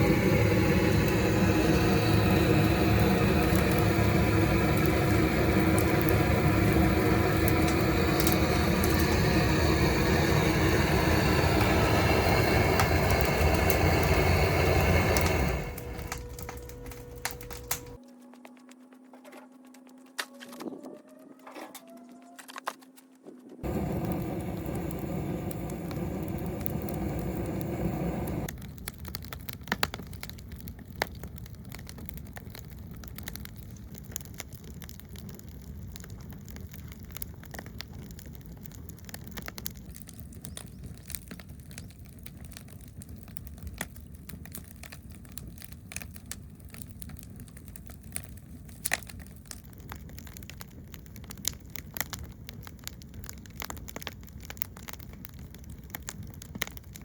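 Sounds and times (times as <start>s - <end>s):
steady pitched hum: 0.0s - 18.0s, 23.6s - 28.5s
wood fire crackling and popping: 0.0s - 18.0s, 23.6s - 57.0s.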